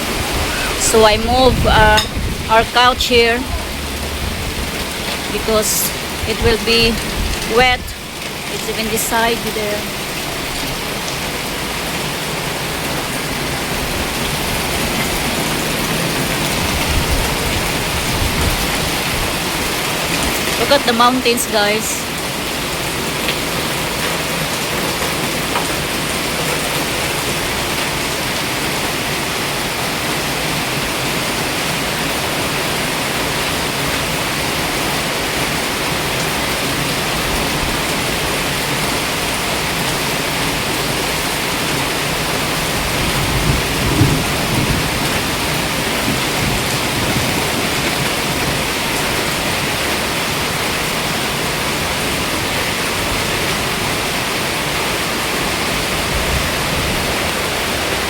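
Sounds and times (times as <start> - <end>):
low rumble: 0.0 - 8.6
heavy rain falling: 0.0 - 58.0.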